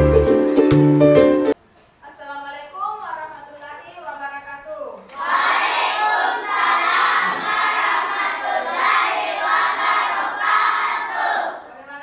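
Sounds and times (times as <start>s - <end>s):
children chanting: 5.1s - 11.8s.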